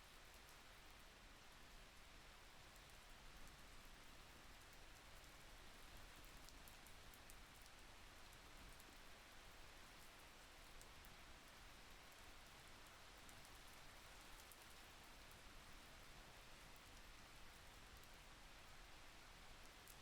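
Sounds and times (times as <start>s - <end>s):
faint steady rain: 0.0s - 20.0s.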